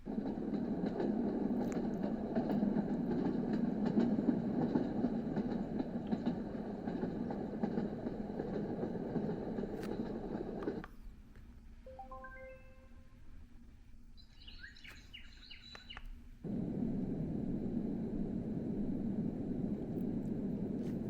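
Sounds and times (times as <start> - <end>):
faint clicks: 1.6 - 2.6, 15.7 - 16.2.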